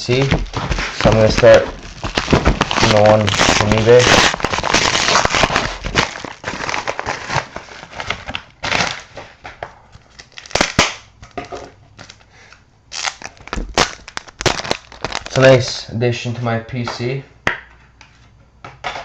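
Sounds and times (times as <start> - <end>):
packaging crinkling and tearing: 0.0 - 9.3, 9.9 - 11.0, 12.9 - 15.8.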